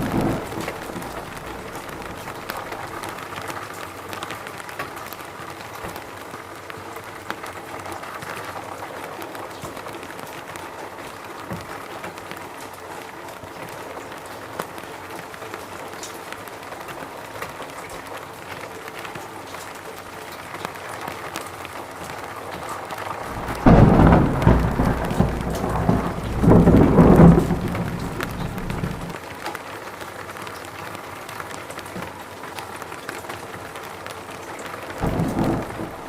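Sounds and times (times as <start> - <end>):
thunder rumbling: 0.0 - 3.3, 23.2 - 29.2, 35.0 - 36.0
rain falling: 0.0 - 36.0.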